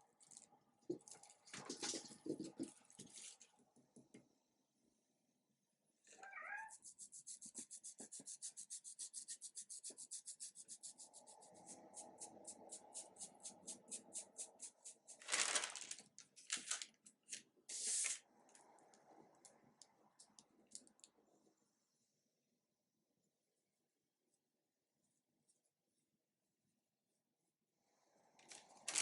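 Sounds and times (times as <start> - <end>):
brush scrubbing on paper: 6.7 - 15.6, 23.4 - 27.5.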